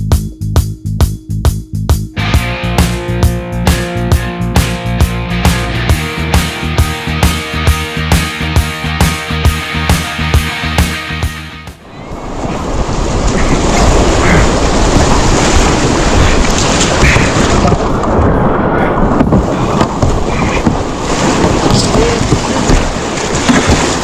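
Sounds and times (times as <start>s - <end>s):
wind buffeting microphone: 11.8s - 24.0s
rushing whitewater: 12.0s - 18.2s, 19.4s - 24.0s.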